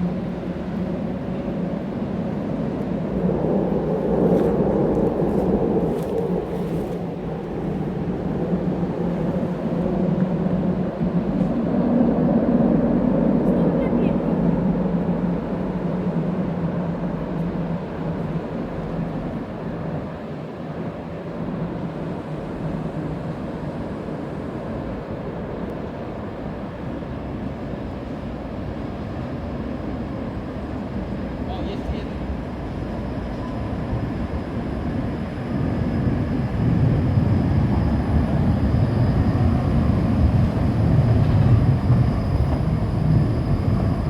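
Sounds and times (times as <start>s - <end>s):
tram rumbling on rails: 0.0s - 44.0s
tram wheels rumbling on rails: 25.8s - 44.0s.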